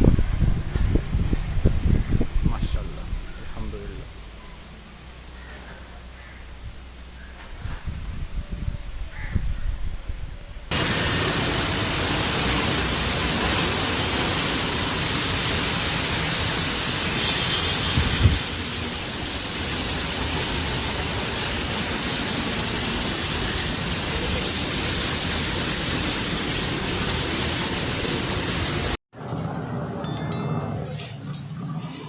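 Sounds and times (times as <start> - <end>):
strong wind: 0.0 - 4.4, 6.3 - 20.0
heavy rain pouring: 10.7 - 29.0.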